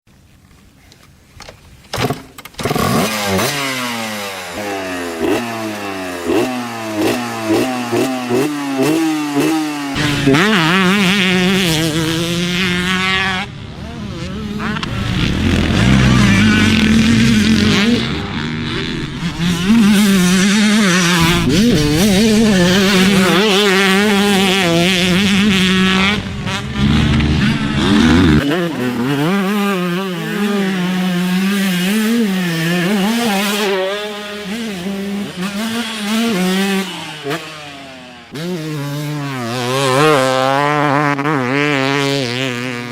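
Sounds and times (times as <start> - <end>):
two-stroke motocross bikes revving: 2.5 - 42.9.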